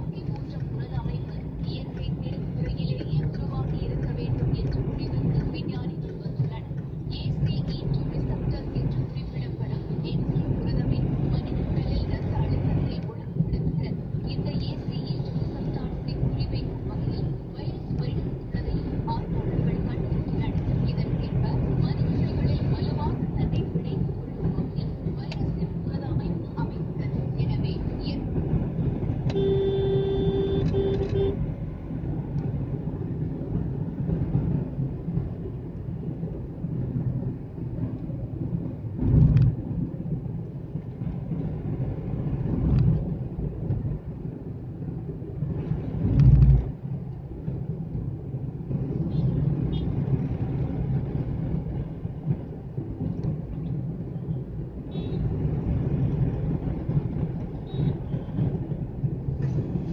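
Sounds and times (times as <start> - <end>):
car engine and road rumble: 0.0 - 59.9
vehicle horn: 29.3 - 31.4.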